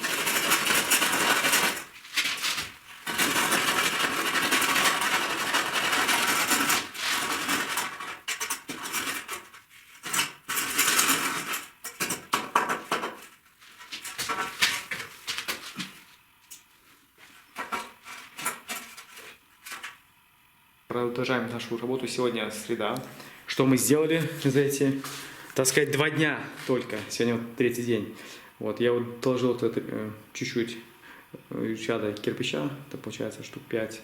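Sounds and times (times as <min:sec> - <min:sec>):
trowel scraping: 0:00.0 - 0:12.3.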